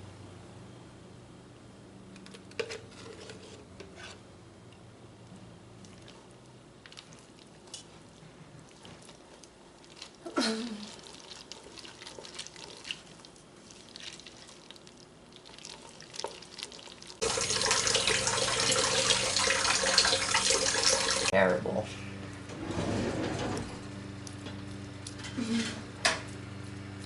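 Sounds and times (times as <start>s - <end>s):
tap water running into sink: 17.2s - 21.3s.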